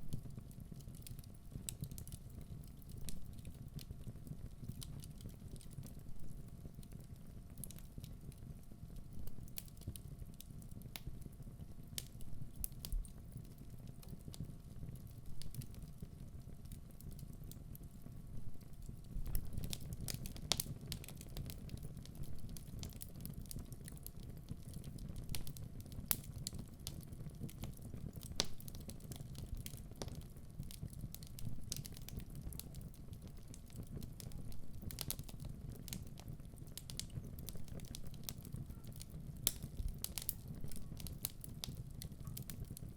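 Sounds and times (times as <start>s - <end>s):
logs crackling and popping: 0.1s - 11.3s, 11.9s - 42.9s
fire flames rumbling: 11.8s - 42.9s.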